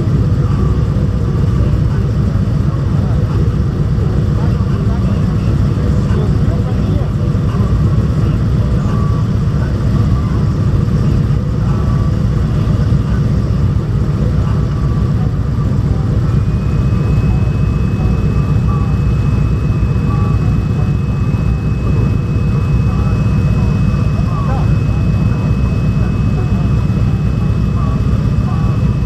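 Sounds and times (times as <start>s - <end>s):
steady high-pitched tone: 0.0s - 29.0s.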